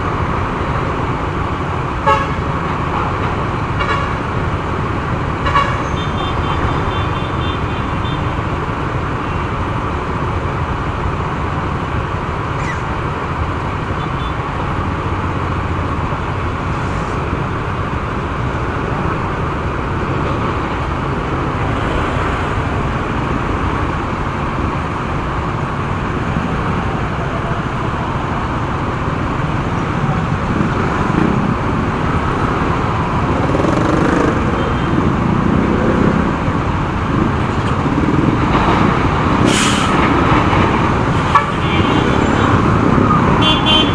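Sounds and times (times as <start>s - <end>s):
road noise: 0.0s - 43.9s
motorcycle engine: 30.0s - 36.2s.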